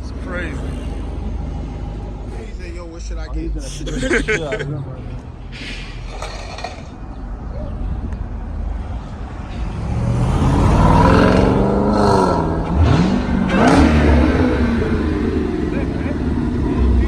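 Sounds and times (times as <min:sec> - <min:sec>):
car engine accelerating hard: 0:09.6 - 0:17.0.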